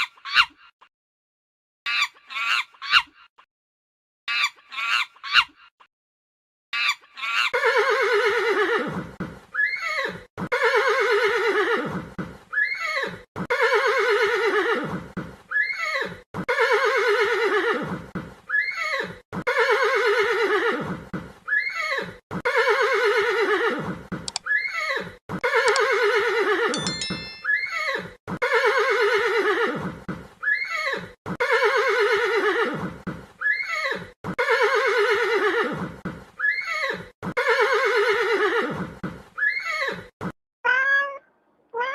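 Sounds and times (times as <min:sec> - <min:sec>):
horse whinnying: 0:21.5 - 0:29.8, 0:30.4 - 0:40.1.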